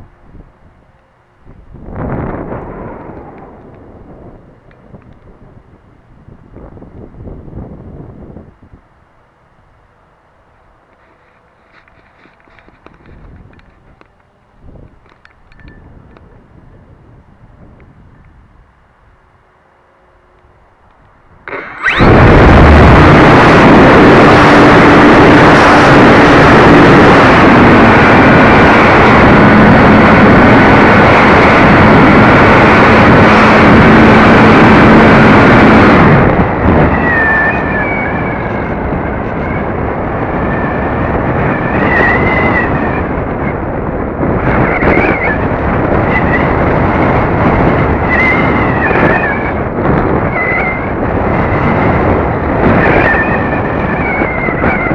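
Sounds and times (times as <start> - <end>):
wind rushing over microphone: 0.0 - 54.9
steady hum: 16.4 - 40.5
wavering whistles: 21.5 - 22.2.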